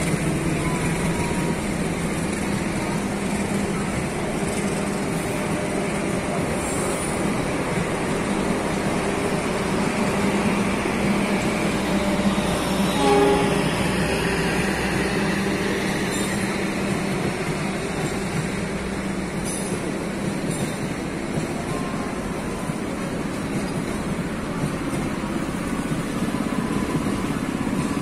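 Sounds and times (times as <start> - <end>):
passenger train rumbling: 0.0 - 28.0
brief tone: 0.6 - 1.7.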